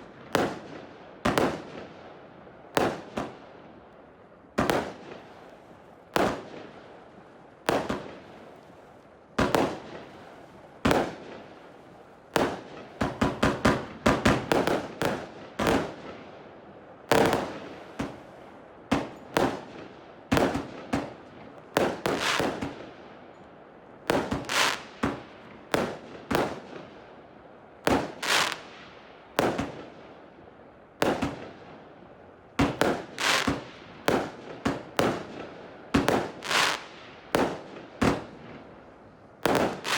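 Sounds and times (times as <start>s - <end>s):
firework cake bangs: 39.4s - 39.9s.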